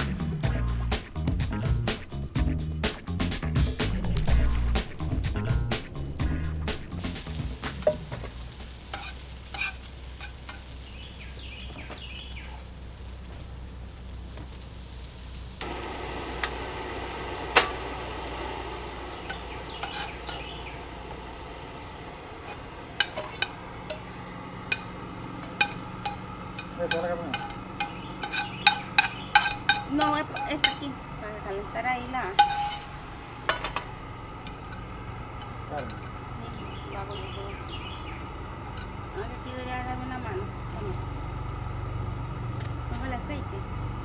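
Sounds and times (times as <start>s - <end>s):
food sizzling: 0.0s - 44.0s
metal utensils clinking on a pan: 7.0s - 12.6s, 19.2s - 37.8s, 38.7s - 39.0s.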